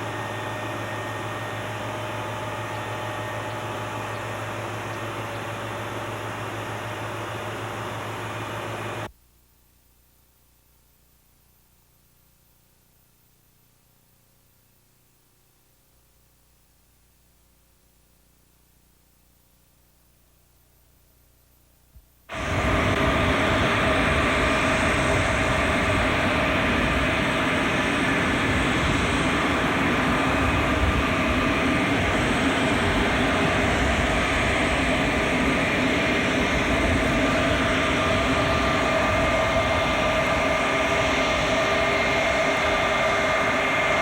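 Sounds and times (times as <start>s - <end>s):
jet engines roaring: 22.3s - 44.0s.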